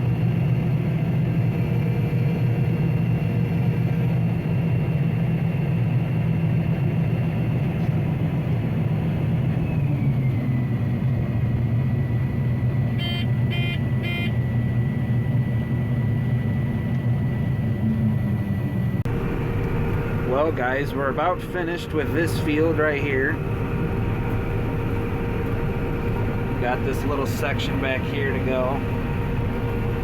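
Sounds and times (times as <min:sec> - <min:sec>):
combine harvester running: 0:00.0 - 0:30.0
short beeps: 0:13.0 - 0:14.4.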